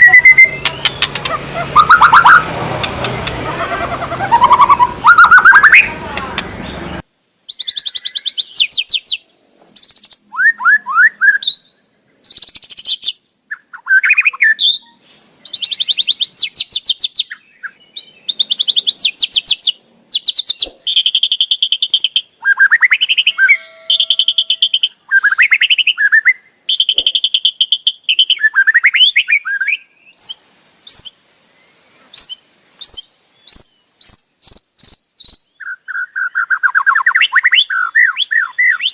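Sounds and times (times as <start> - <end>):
bird whistled notes: 0.0 - 2.5, 3.2 - 5.9, 20.2 - 31.1
loud noisy rush: 0.4 - 5.1
bird rattling chatter: 0.6 - 1.4, 2.7 - 4.2.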